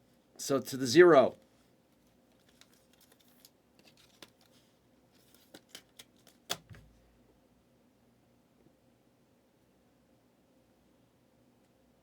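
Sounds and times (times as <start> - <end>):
trading cards clicking and rustling: 2.4 - 4.6, 5.2 - 6.8.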